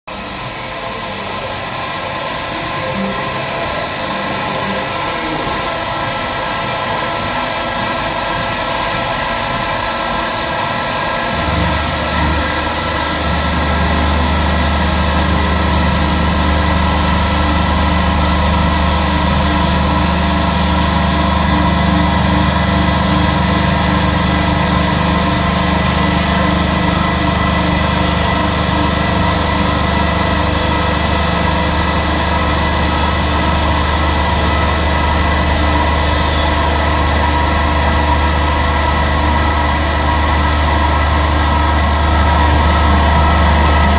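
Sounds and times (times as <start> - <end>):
machine high whine: 0.1 - 43.9
deep hum: 10.9 - 43.9.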